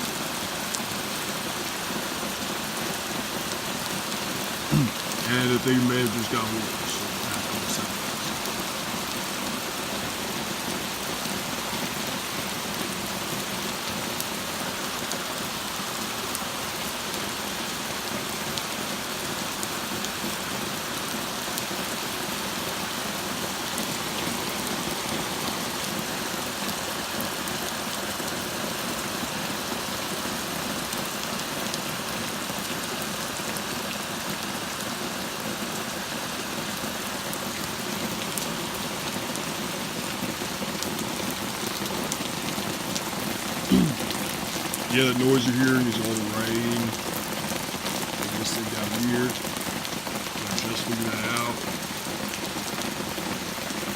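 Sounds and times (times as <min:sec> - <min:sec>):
torrential rain pouring: 0:00.0 - 0:53.9
faint ticks of raindrops: 0:00.3 - 0:01.6, 0:02.4 - 0:53.9.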